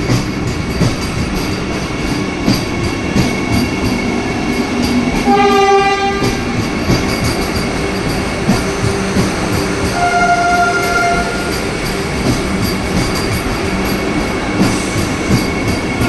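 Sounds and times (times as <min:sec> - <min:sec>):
train rumbling past: 0:00.0 - 0:16.0
train horn: 0:05.2 - 0:06.5, 0:09.9 - 0:11.7.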